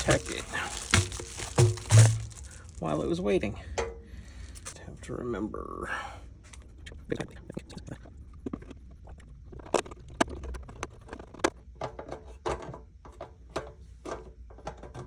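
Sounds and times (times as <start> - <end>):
small parts clicking and knocking: 0.0 - 2.8.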